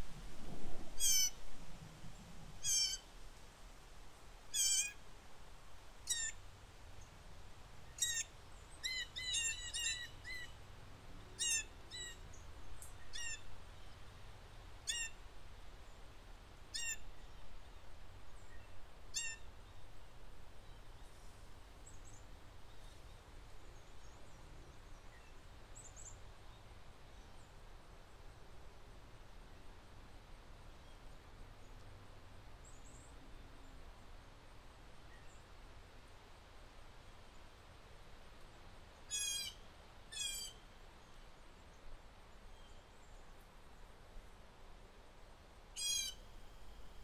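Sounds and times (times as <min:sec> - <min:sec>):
low wind rumble: 0:00.0 - 0:04.5
songbird calls: 0:01.0 - 0:01.4, 0:02.6 - 0:03.1, 0:04.5 - 0:05.0, 0:06.0 - 0:06.4, 0:07.9 - 0:10.6, 0:11.3 - 0:14.0, 0:14.8 - 0:15.2, 0:16.7 - 0:17.5, 0:18.3 - 0:19.8, 0:39.1 - 0:40.6, 0:45.8 - 0:47.0.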